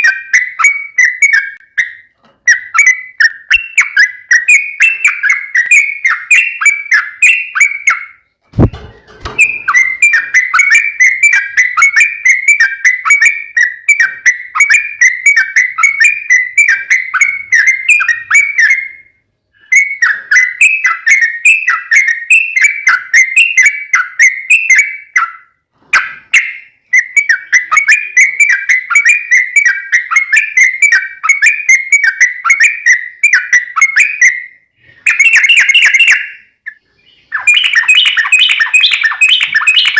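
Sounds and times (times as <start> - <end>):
bulbul song rapid chattering: 35.1 - 39.9.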